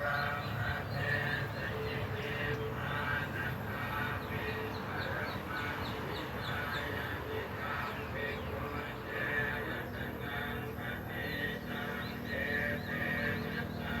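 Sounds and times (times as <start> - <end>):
birds chirping: 0.0 - 14.0
busy background noise: 0.0 - 14.0.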